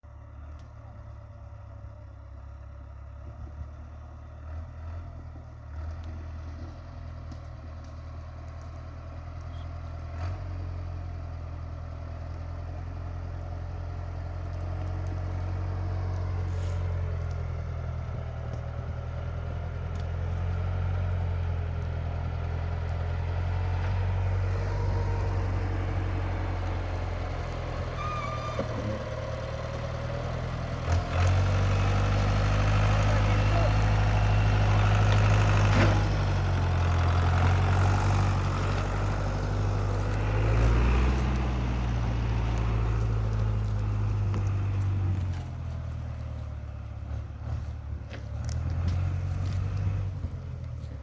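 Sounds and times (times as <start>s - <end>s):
tractor diesel engine running: 0.0s - 51.0s
light clicks and clatters: 42.5s - 51.0s.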